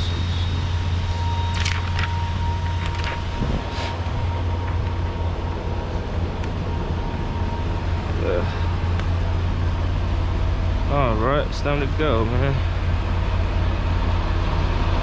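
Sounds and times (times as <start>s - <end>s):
diesel truck engine idling: 0.0s - 15.0s
thin steady whine: 0.0s - 15.0s
handling clicks and rustles: 1.5s - 3.4s.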